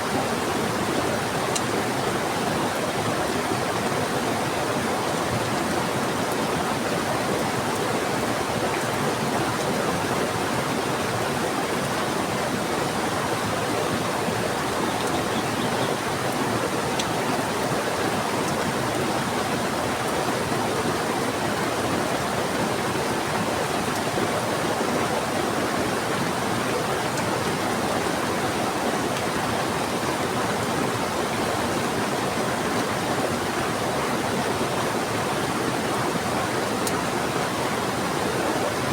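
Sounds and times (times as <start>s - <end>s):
heavy rain: 0.0s - 38.9s
river water rushing: 0.0s - 38.9s.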